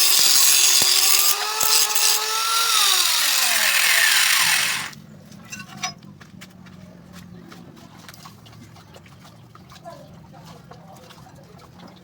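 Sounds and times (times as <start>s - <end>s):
power tool whining on metal: 0.0s - 5.0s.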